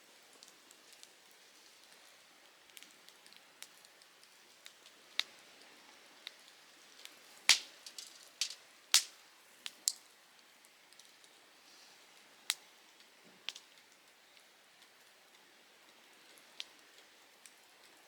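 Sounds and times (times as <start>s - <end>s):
faint steady hiss: 0.0s - 18.0s
campfire crackling and popping: 0.4s - 5.4s, 6.2s - 11.4s, 12.5s - 15.2s.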